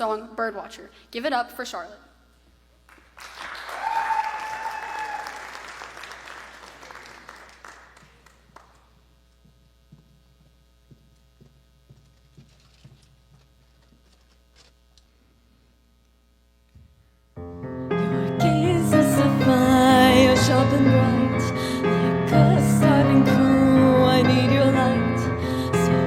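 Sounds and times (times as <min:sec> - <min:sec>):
audience applauding and cheering: 0:02.9 - 0:08.8
high whoop: 0:03.6 - 0:05.6.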